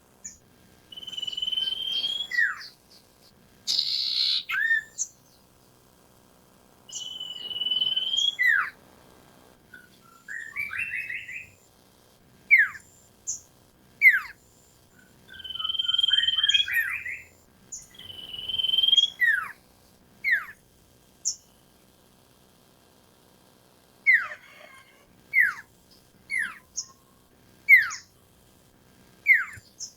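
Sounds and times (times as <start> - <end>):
bird singing whistled notes: 0.2 - 2.8, 3.7 - 5.4, 6.9 - 8.8, 9.7 - 11.6, 12.5 - 13.4, 15.0 - 19.5, 27.7 - 28.1, 29.3 - 29.9
bird chattering: 1.0 - 3.1, 3.7 - 5.1, 15.3 - 17.2, 24.1 - 25.7, 26.3 - 28.1, 29.3 - 29.9.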